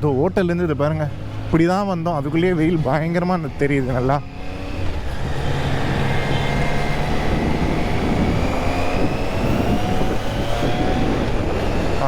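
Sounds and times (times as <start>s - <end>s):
motorcycle engine hum: 0.0s - 12.0s
wind rushing over microphone: 2.7s - 12.0s.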